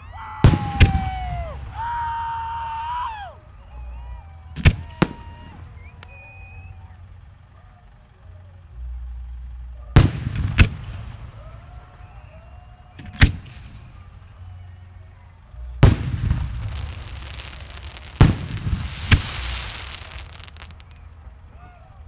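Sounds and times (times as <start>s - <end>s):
firework whistling: 0.0s - 22.0s
firework shells bursting with bangs: 0.4s - 2.6s, 3.4s - 22.0s.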